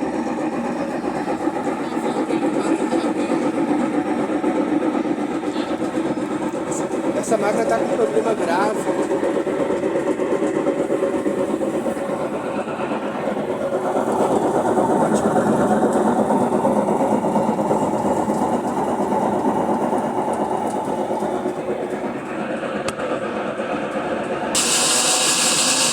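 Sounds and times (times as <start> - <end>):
washing machine mechanical noise: 0.0 - 25.9.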